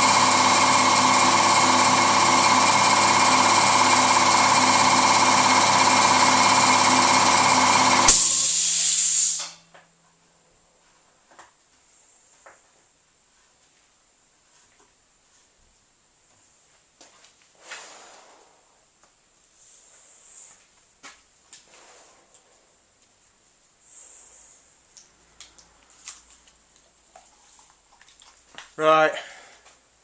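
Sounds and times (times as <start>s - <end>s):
air compressor running: 0.0s - 9.6s
hiss of released air: 8.1s - 9.6s.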